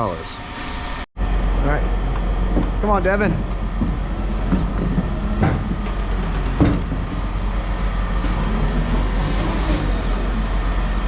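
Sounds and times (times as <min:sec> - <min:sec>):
heavy vehicle engine rumbling: 0:00.0 - 0:11.0
sharp knocks: 0:03.3 - 0:07.3.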